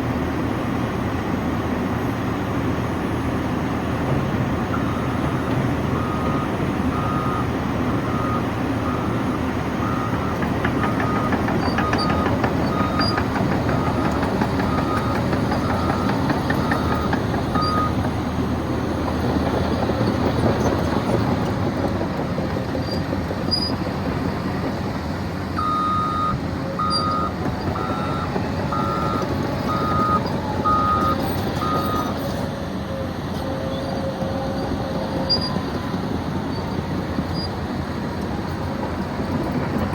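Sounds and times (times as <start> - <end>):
diesel engine running: 0.0 - 39.9
backup alarm beeping: 25.6 - 32.1.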